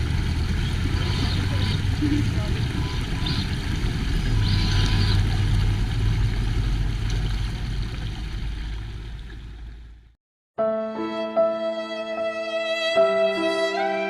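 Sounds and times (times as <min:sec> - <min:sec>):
violin music: 0:10.6 - 0:14.0.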